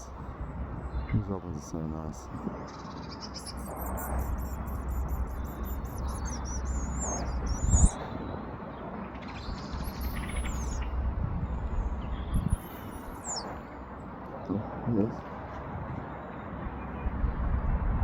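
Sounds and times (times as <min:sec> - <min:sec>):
robin singing: 0:00.0 - 0:15.3
low rumble: 0:03.4 - 0:08.4, 0:09.2 - 0:18.0.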